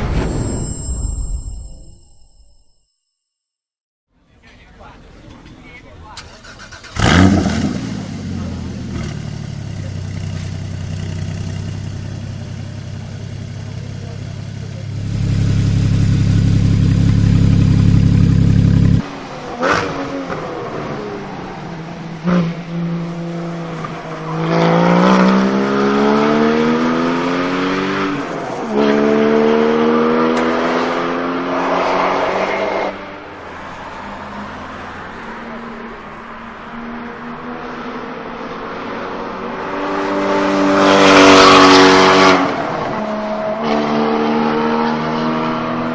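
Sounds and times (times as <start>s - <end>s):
sports car engine revving: 6.8s - 19.0s.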